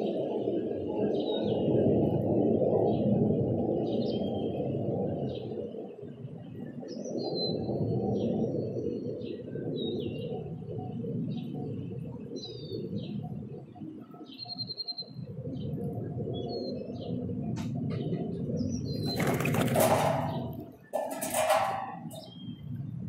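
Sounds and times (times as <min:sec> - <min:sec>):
small birds chirping: 0:11.2 - 0:23.0
bird wings flapping: 0:19.0 - 0:22.2.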